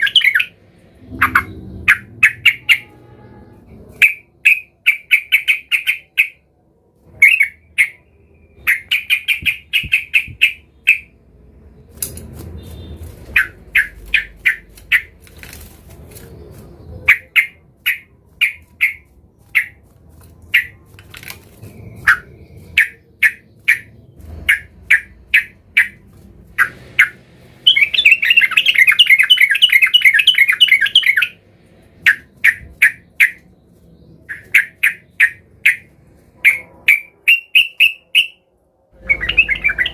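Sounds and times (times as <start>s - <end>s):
bird chattering: 0.0s - 3.0s, 4.0s - 6.4s, 8.6s - 11.2s, 12.7s - 15.2s, 16.9s - 19.8s, 22.0s - 26.0s, 26.6s - 31.4s, 32.0s - 33.5s, 34.3s - 38.4s, 39.0s - 39.9s
bulbul chirping: 0.0s - 3.0s, 4.0s - 6.4s, 7.2s - 11.2s, 12.6s - 15.1s, 17.0s - 19.8s, 22.0s - 26.0s, 26.6s - 31.4s, 34.3s - 38.4s, 39.0s - 39.9s.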